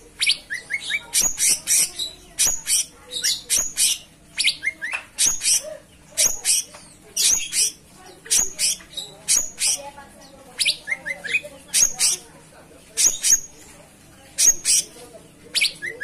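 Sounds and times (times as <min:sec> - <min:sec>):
songbird chirping and whistling: 0:00.2 - 0:09.9, 0:10.6 - 0:12.2.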